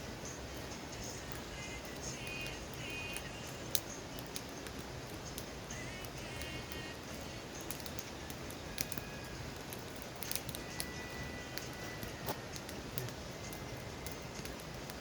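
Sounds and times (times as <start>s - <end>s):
campfire popping and snapping: 0.0s - 15.0s.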